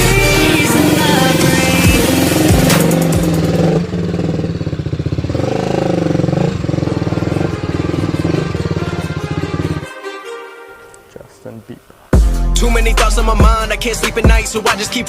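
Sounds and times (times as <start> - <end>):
motorcycle engine running: 0.0 - 9.9.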